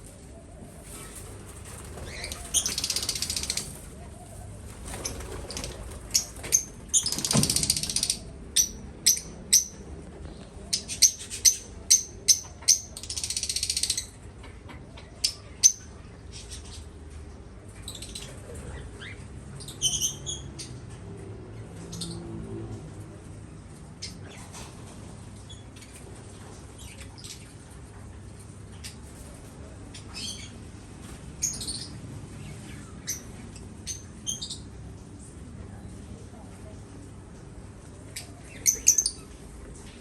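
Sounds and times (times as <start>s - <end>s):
small birds chirping: 0.0s - 17.1s, 31.4s - 35.0s, 37.9s - 40.0s
rustling bursts: 0.7s - 7.3s.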